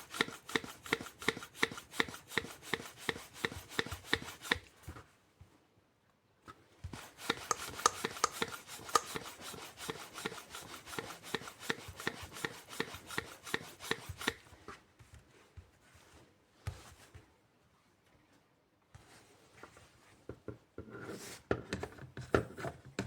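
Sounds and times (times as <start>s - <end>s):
hand bike pump clicking: 7.2s - 14.4s.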